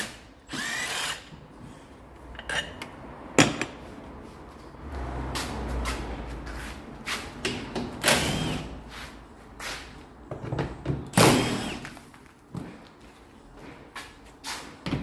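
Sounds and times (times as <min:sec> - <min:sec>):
tools knocking and clunking: 0:02.3 - 0:03.8, 0:10.2 - 0:11.2.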